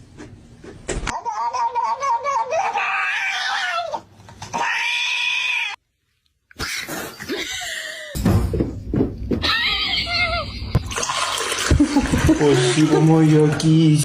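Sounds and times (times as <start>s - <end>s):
cats meowing: 1.2s - 5.8s.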